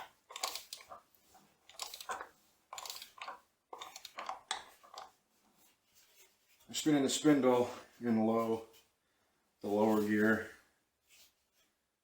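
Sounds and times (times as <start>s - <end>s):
metal parts scraping and clicking: 0.0s - 5.2s.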